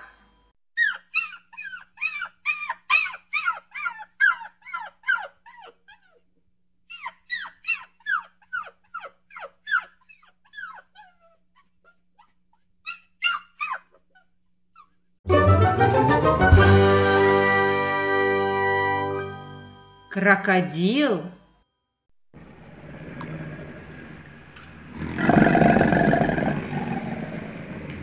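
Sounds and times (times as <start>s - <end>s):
puppy yelping: 0.8s - 15.1s.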